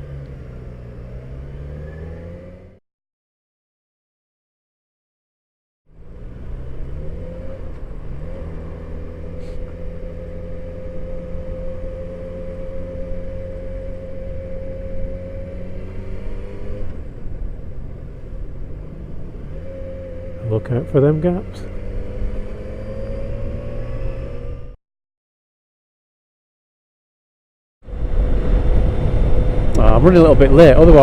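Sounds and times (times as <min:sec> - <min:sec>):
wind and road noise: 0:00.0 - 0:02.8, 0:05.9 - 0:24.8, 0:27.8 - 0:31.0
motorcycle engine running: 0:06.0 - 0:24.7.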